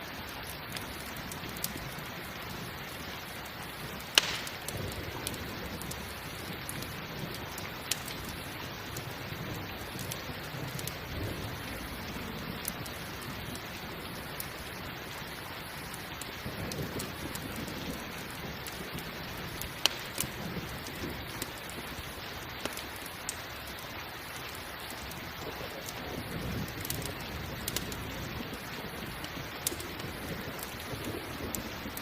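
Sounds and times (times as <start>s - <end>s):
campfire crackling and popping: 0.0s - 32.0s
steady rain hiss: 0.0s - 32.0s
low rumble of thunder: 3.8s - 15.0s, 15.8s - 22.1s, 25.4s - 32.0s.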